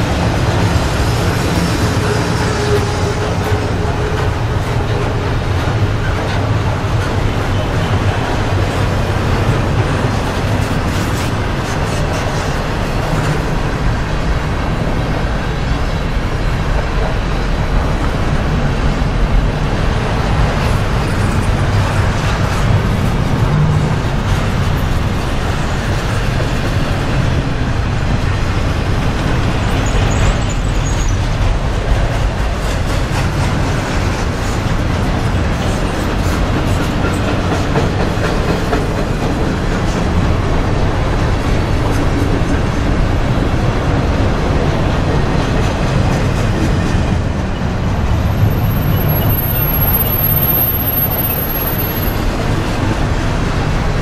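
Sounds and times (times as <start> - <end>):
train wheels rumbling and clicking: 0.0 - 54.0
high-pitched squeal: 48.2 - 52.4.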